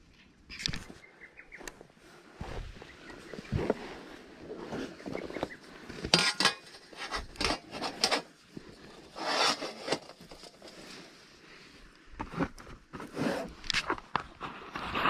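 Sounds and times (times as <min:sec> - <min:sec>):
rustling and scraping: 0:01.6 - 0:11.3, 0:12.0 - 0:15.0
camping gear knocks and clicks: 0:04.6 - 0:10.8.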